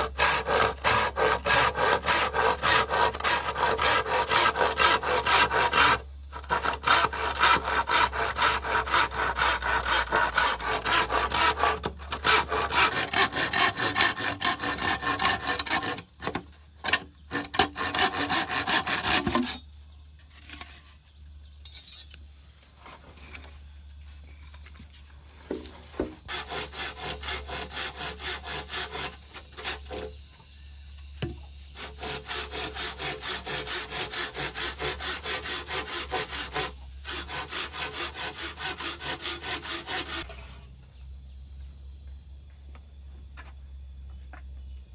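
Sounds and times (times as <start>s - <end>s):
hand saw cutting wood: 0.0s - 19.6s, 25.5s - 30.2s, 31.8s - 40.6s.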